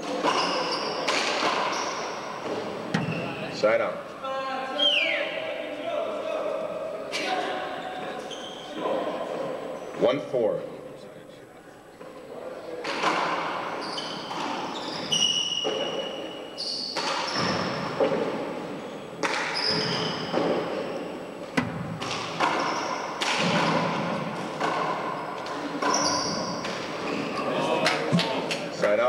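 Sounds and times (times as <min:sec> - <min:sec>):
handball hitting court walls: 0:00.0 - 0:03.2, 0:12.8 - 0:18.6, 0:19.2 - 0:29.0
shoes squeaking: 0:00.0 - 0:03.7, 0:08.0 - 0:09.0, 0:12.9 - 0:23.2, 0:23.9 - 0:29.0.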